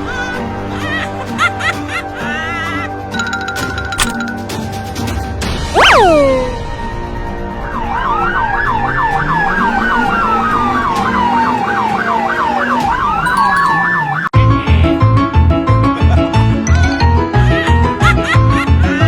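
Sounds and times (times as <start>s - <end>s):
police siren yelping: 5.8s - 6.6s, 7.8s - 14.4s
siren wail: 5.8s - 6.6s, 7.5s - 14.4s.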